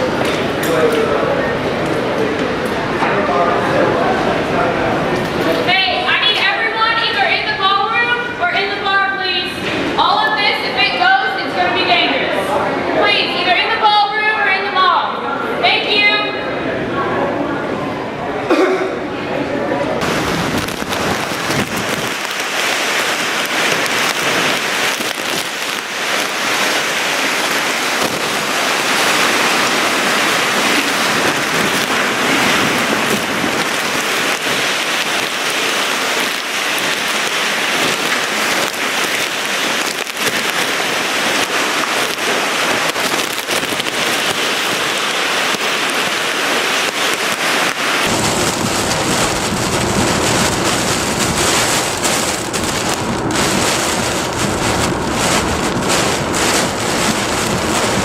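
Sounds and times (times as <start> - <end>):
heavy rain and wind: 0.0 - 58.0
deep rumble: 20.0 - 46.4, 48.0 - 58.0.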